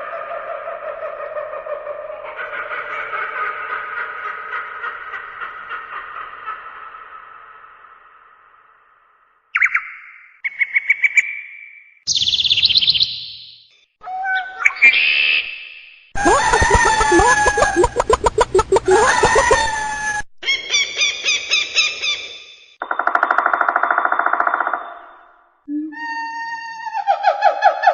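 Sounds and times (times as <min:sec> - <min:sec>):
bird chirps and trills: 0:09.6 - 0:13.7, 0:16.2 - 0:22.6.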